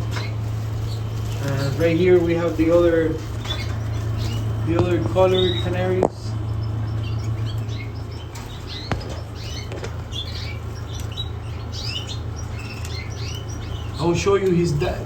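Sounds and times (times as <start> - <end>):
canaries chirping: 0.0 - 15.0
steady low hum: 0.0 - 15.0
wings fluttering: 0.0 - 15.0.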